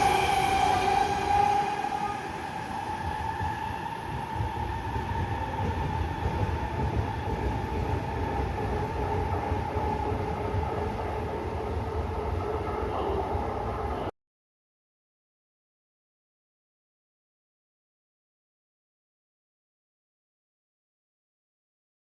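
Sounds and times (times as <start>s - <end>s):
wheels rumbling on rail: 0.0s - 14.1s.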